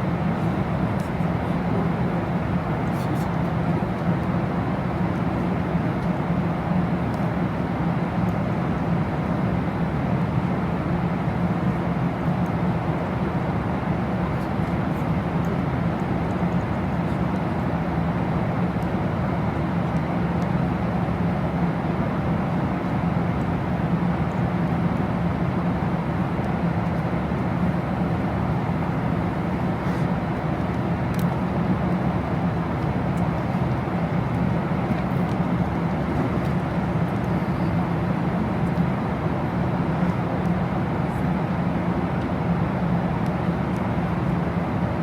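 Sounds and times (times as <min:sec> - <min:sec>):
airliner cabin rumble: 0:21.6 - 0:45.0.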